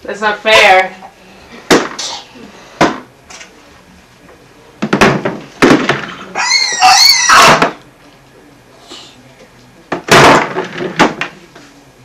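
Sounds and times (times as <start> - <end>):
objects thudding on hard surface: 1.7 - 2.0, 2.8 - 3.1, 4.8 - 6.3, 9.9 - 11.5
toddler squealing: 6.4 - 7.6.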